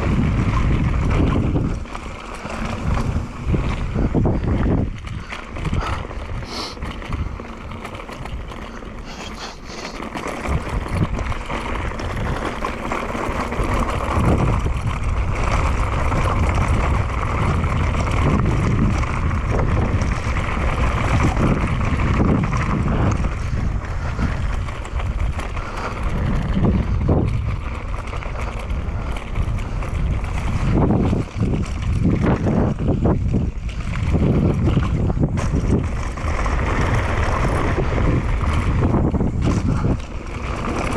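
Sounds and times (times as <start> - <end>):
tyres crunching over dirt: 0.0 - 19.4
bike frame rattling: 0.0 - 40.9
wind buffeting microphone: 0.0 - 40.9.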